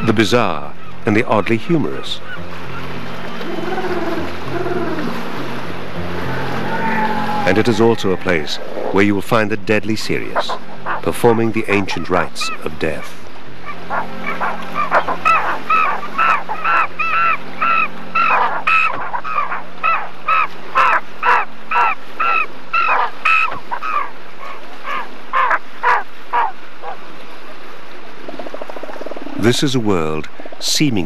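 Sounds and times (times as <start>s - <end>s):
birds harsh cries: 0.3s - 9.2s, 10.1s - 29.4s.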